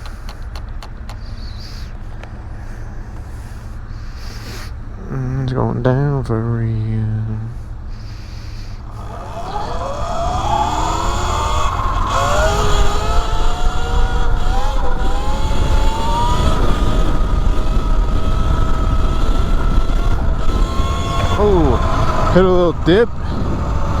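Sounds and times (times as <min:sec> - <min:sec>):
electric motor whining: 0:07.6 - 0:24.0
wind rumble on camera: 0:08.8 - 0:24.0.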